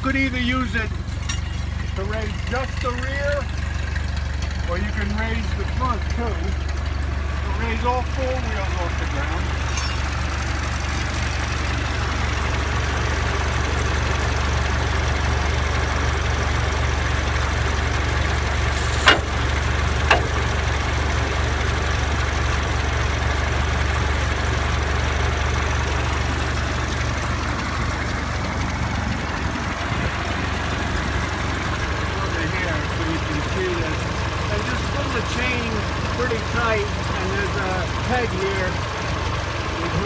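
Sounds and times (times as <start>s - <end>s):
tractor engine idling: 0.0s - 40.0s
sharp knocks: 18.8s - 20.6s.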